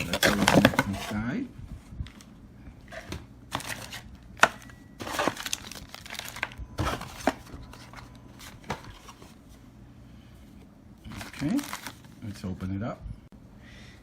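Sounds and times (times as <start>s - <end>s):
packaging crinkling and rustling: 0.0s - 1.2s, 2.9s - 9.4s, 11.1s - 12.2s.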